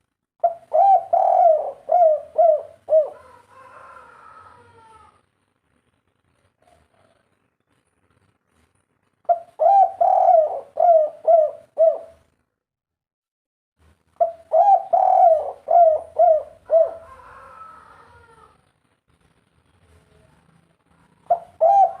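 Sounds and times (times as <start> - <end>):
dove cooing: 0.4 - 5.1, 9.3 - 12.3, 14.2 - 18.6, 21.0 - 22.0.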